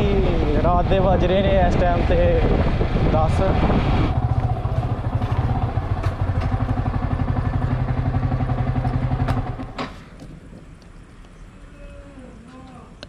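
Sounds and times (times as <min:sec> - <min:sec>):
motorcycle engine running: 0:02.6 - 0:09.8.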